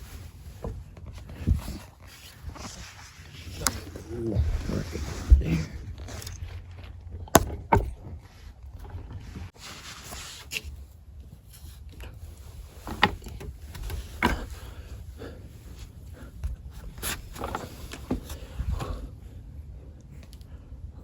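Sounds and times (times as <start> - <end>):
rustling and scraping: 0.0 - 19.2
low steady rumble: 0.0 - 21.0
knocks and bumps against wood: 3.6 - 9.5, 12.8 - 14.7, 17.3 - 19.0.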